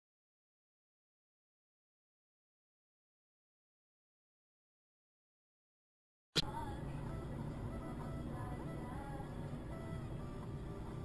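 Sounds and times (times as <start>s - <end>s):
faint music: 6.4s - 11.0s
road noise inside car: 6.4s - 11.0s.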